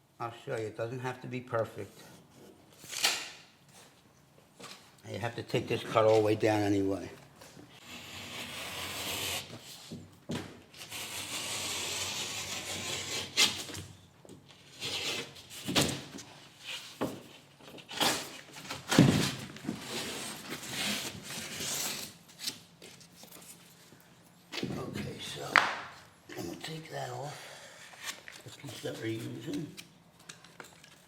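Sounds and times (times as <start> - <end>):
utility knife scraping drywall: 7.8 - 9.9, 10.8 - 13.8, 14.7 - 15.5.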